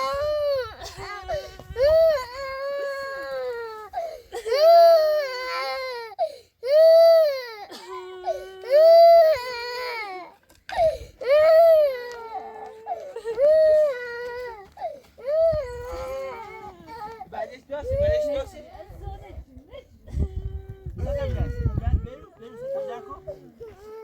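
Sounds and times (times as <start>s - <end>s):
infant crying: 0.0s - 18.4s
catches of breath: 3.9s - 4.4s, 6.2s - 6.6s, 10.5s - 11.2s, 14.6s - 15.2s.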